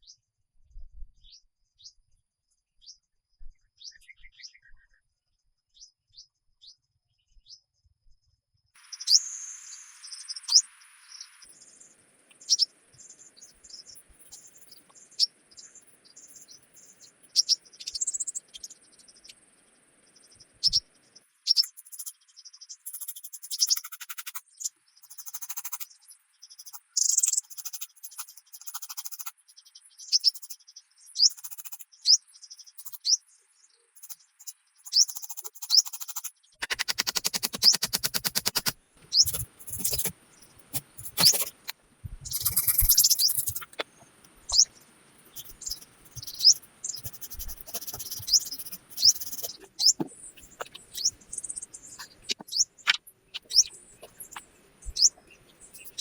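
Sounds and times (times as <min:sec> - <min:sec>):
birds chirping: 0:08.8 - 0:19.4, 0:20.2 - 0:22.1, 0:34.0 - 0:56.0
rapid rattling trills: 0:35.6 - 0:44.7, 0:45.3 - 0:51.2.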